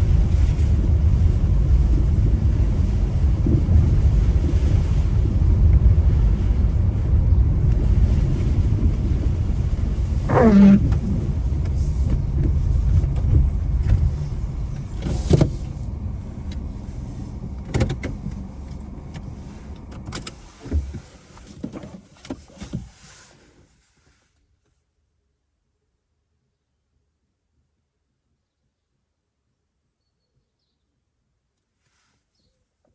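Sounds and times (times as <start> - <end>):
car cabin rumble: 0.0 - 23.2
short falling squeak: 10.3 - 10.9.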